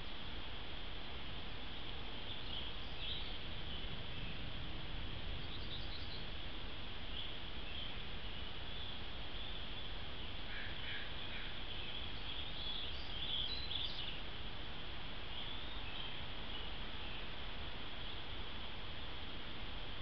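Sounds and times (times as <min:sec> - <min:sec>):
steady background hiss: 0:00.0 - 0:20.0
faint high bird chirps: 0:01.6 - 0:04.5, 0:05.2 - 0:06.4, 0:07.1 - 0:14.3, 0:15.3 - 0:17.3.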